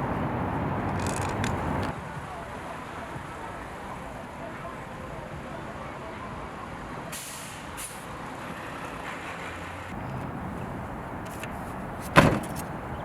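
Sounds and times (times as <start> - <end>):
city traffic: 0.0 - 13.0
sharp thump: 11.3 - 12.8.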